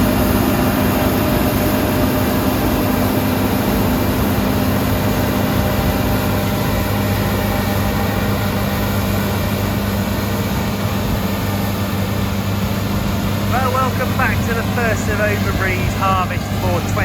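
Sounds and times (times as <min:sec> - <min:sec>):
combine harvester engine drone: 0:00.0 - 0:17.0
low machinery hum: 0:00.0 - 0:17.0.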